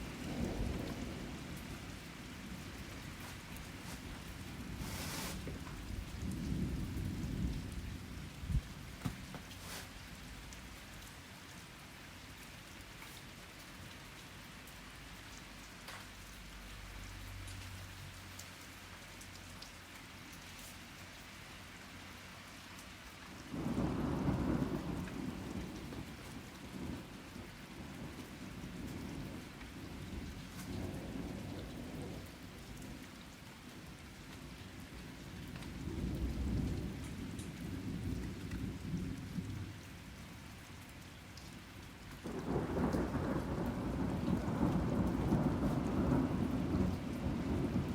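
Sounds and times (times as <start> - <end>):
thunder rumbling: 0.0 - 9.5, 42.2 - 47.9
rain pattering: 0.0 - 47.9
raindrops clicking on a surface: 0.0 - 47.9.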